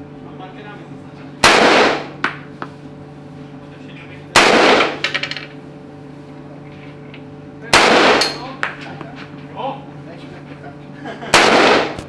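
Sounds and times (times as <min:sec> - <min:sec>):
gunshot with ringing tail: 0:11.4 - 0:12.0.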